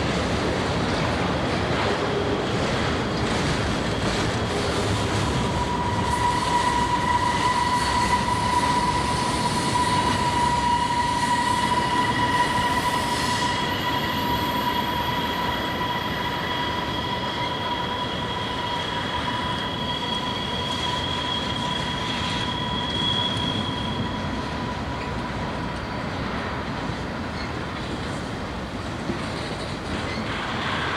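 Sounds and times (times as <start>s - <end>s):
train wheels squealing: 1.8s - 30.9s
higher wheel squeal: 3.0s - 28.3s, 29.2s - 30.9s.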